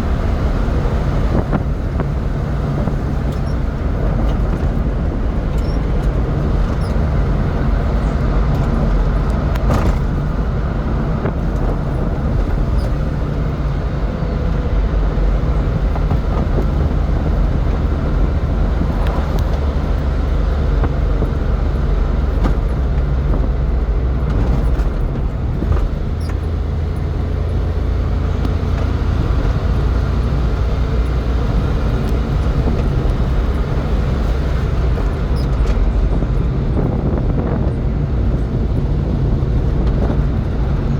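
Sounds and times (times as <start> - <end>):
road and wind noise: 0.0 - 40.9
truck engine drone: 0.0 - 40.9.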